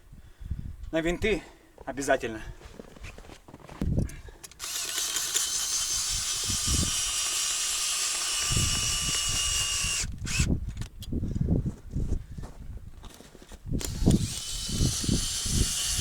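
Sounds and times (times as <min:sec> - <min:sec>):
cordless drill whining: 0:04.5 - 0:10.8, 0:13.8 - 0:16.0.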